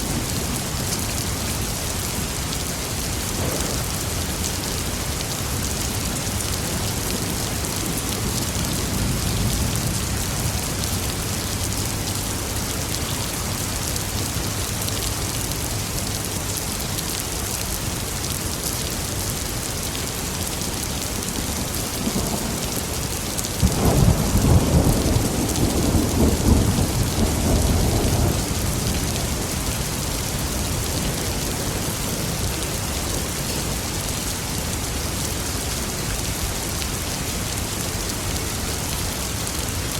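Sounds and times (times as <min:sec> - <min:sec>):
steady rain: 0:00.0 - 0:39.9
thunder rumbling: 0:03.3 - 0:04.9, 0:21.4 - 0:32.6.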